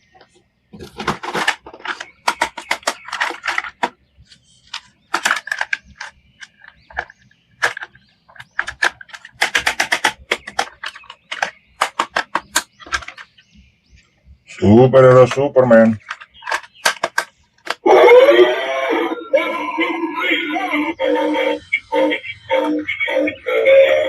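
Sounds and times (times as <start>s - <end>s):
plastic clicks and rattles: 0.1s - 13.7s, 15.2s - 17.8s.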